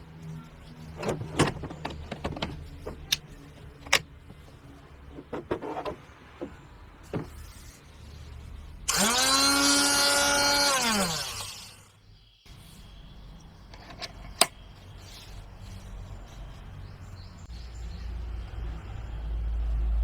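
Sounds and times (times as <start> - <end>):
clicks and knocks of parts: 0.9 - 6.6, 13.7 - 14.7
electric motor whining: 8.9 - 11.9.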